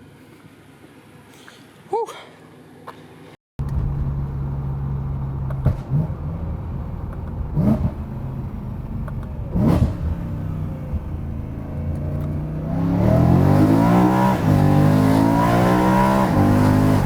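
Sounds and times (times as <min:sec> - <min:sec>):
car engine revving: 0:03.6 - 0:17.0.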